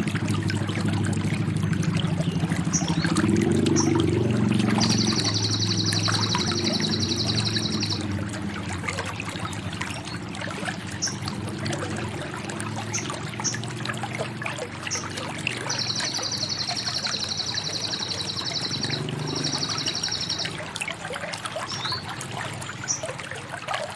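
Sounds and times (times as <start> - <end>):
water trickling: 0.0 - 23.9
bird singing rapid trill: 2.1 - 8.2, 10.9 - 11.3, 14.9 - 20.8, 21.6 - 22.1
bird chirps: 2.2 - 8.1, 14.9 - 20.7.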